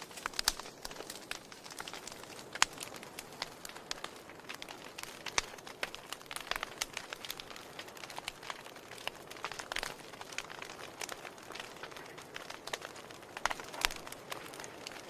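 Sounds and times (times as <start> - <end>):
fire crackles and pops: 0.0 - 15.0
soft hiss of flame: 0.0 - 15.0.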